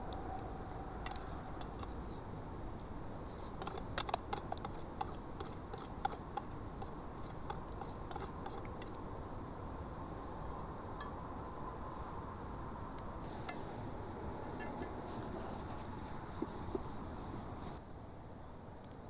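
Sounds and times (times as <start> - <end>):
steady low hiss: 0.0 - 19.0
small utensils clinking: 1.1 - 2.2.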